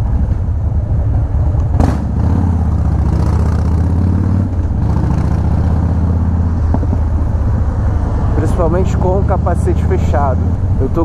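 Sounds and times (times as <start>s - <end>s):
motorcycle engine running: 0.0s - 7.6s
wind noise: 0.0s - 11.0s.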